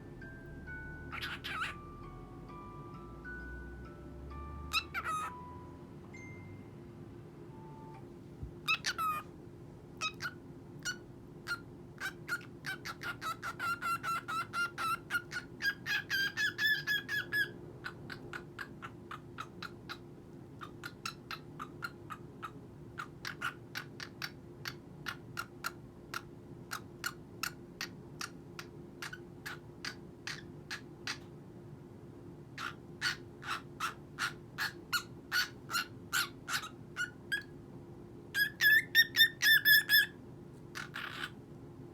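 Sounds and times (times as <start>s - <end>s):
steady low hum: 0.0s - 14.3s
cockatiel chirping: 0.8s - 2.2s, 4.5s - 5.7s, 8.6s - 9.3s, 10.0s - 20.0s, 20.6s - 31.3s, 32.6s - 37.5s, 38.3s - 41.4s.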